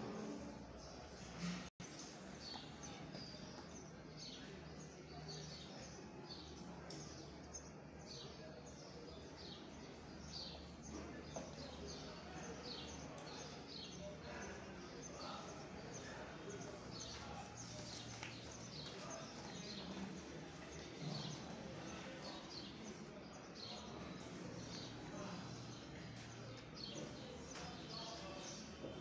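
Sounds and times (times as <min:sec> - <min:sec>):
small birds chirping: 0:00.7 - 0:29.0.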